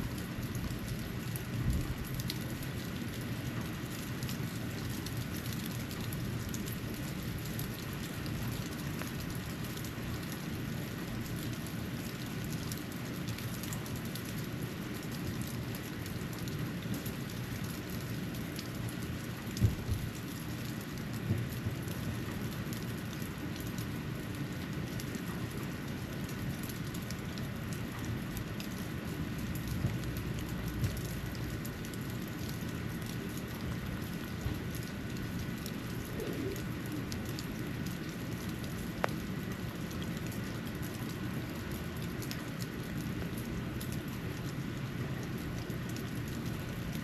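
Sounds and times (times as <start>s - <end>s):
snow falling hiss: 36.0s - 37.1s.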